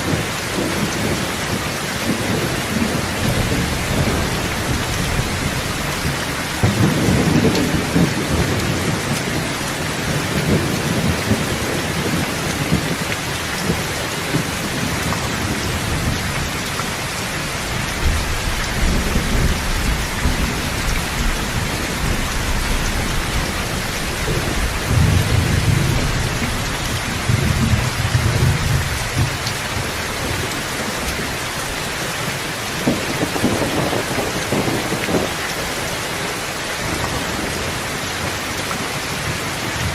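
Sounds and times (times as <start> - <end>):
thunder rolling: 0.0 - 13.0, 17.7 - 30.5, 32.8 - 35.4
steady rain: 0.0 - 39.9.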